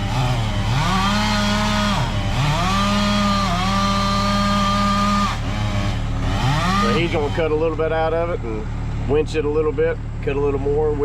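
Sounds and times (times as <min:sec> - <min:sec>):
chainsaw revving and cutting wood: 0:00.0 - 0:08.1.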